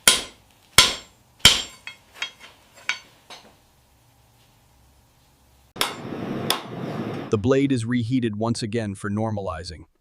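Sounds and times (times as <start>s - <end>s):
hammer striking metal: 0.0s - 3.5s, 5.8s - 6.7s.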